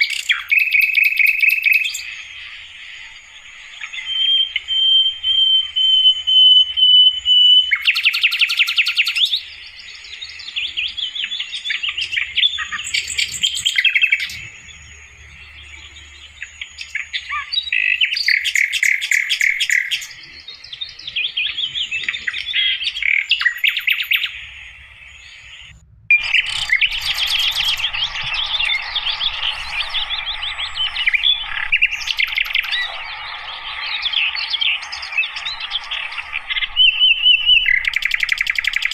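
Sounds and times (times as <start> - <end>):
held bird whistle: 0.0 - 2.6, 3.8 - 9.6, 16.4 - 38.9
bird chirping and twittering: 0.0 - 38.9.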